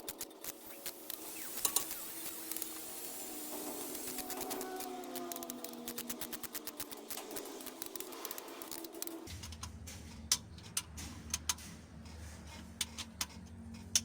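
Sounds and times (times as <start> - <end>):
ratchet wrench clicking: 0.0 - 9.7.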